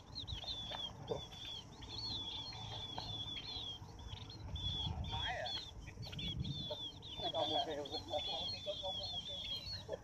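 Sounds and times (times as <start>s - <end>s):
lower falling bird call: 0.0s - 10.0s
small birds chirping: 0.0s - 10.0s
wind rumble on microphone: 4.3s - 7.2s.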